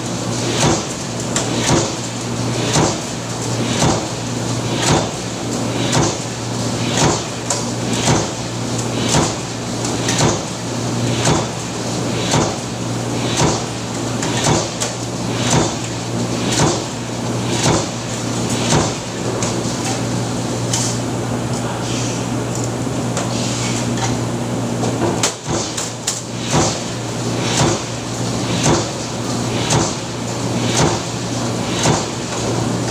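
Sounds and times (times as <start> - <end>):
low machine hum: 0.0 - 32.9
press machine stamping clacks: 0.5 - 12.7, 13.3 - 19.4, 25.0 - 32.9.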